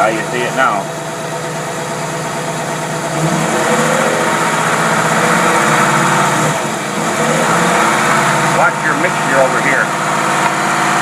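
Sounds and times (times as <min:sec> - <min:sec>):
marine engine running: 0:00.0 - 0:11.0.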